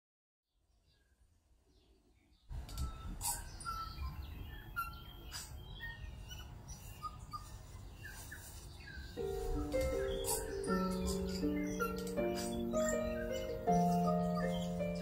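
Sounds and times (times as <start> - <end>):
small birds chirping: 0.5 - 15.0
music: 9.2 - 15.0.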